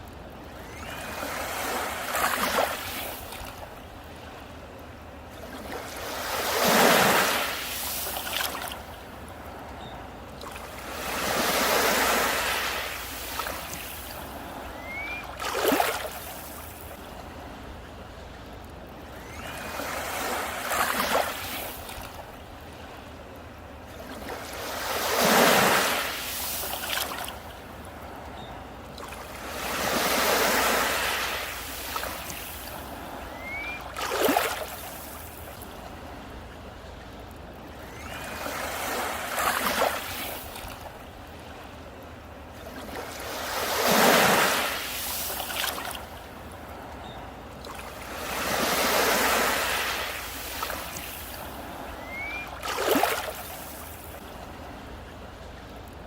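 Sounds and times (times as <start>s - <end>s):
sea waves breaking on a beach: 0.0s - 56.0s.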